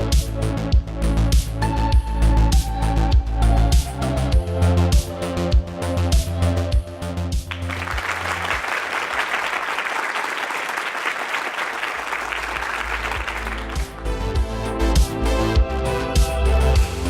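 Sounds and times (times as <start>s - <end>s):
electronic background music: 0.0s - 8.6s, 12.8s - 17.0s
crowd applause: 7.5s - 14.3s.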